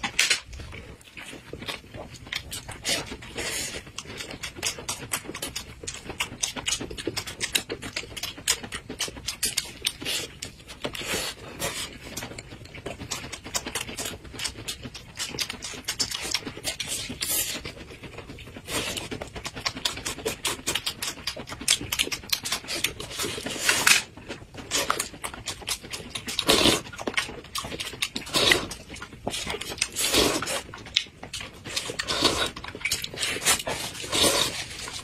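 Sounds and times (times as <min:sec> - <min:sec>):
chewing and lip smacking: 0:00.0 - 0:35.0.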